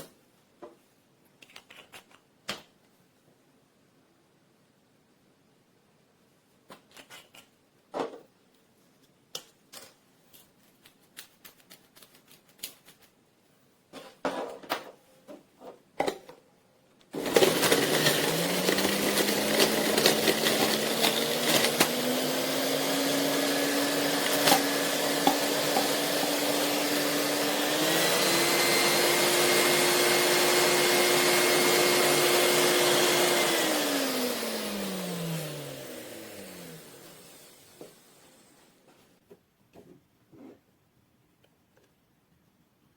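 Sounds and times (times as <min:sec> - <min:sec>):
juice extractor motor whining: 0:17.2 - 0:38.1.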